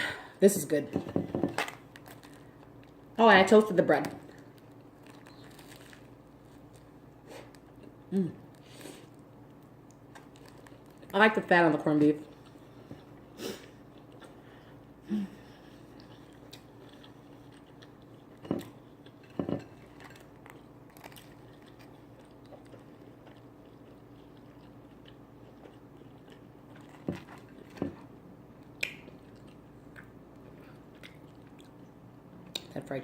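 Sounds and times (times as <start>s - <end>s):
chewing and biting sandwich: 4.4s - 11.1s, 12.3s - 31.9s.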